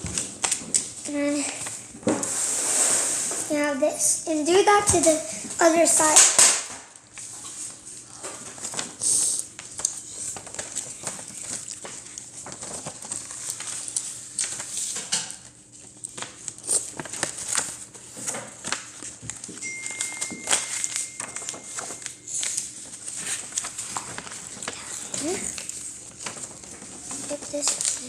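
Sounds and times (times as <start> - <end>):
paper being folded and creased: 7.2 - 28.0.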